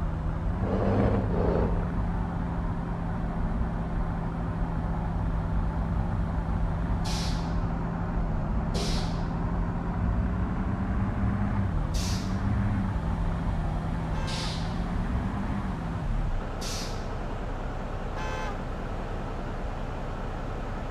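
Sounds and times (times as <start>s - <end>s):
truck diesel engine under load: 0.0s - 20.9s
air brake hisses: 7.0s - 7.6s, 8.8s - 9.3s, 12.0s - 12.4s, 14.2s - 14.8s, 16.6s - 17.1s.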